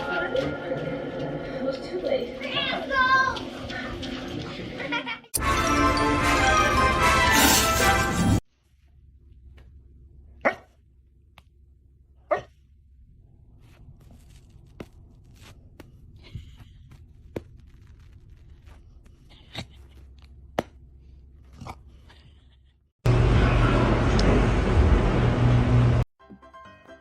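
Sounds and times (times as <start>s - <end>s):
dog barking: 10.4s - 10.7s, 12.3s - 12.6s.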